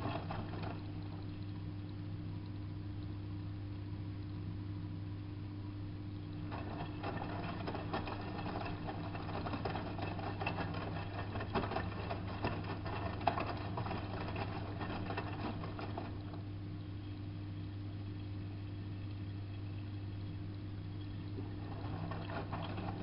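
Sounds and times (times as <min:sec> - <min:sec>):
steady low hum: 0:00.0 - 0:23.0
washing machine drum turning: 0:06.5 - 0:16.4, 0:21.4 - 0:23.0.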